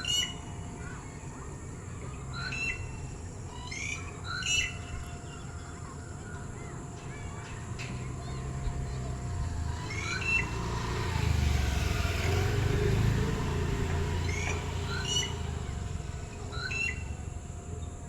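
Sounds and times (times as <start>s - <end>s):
bird whistling rising notes: 9.7s - 11.0s, 14.1s - 17.3s.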